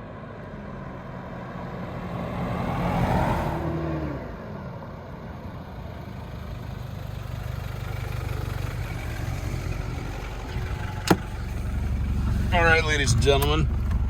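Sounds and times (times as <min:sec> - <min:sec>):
diesel engine idling: 0:05.5 - 0:14.0.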